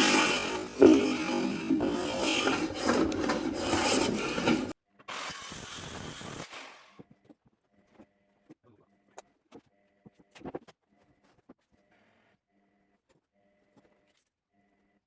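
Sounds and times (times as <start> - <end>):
hand plane shaving wood: 0.0 - 5.5.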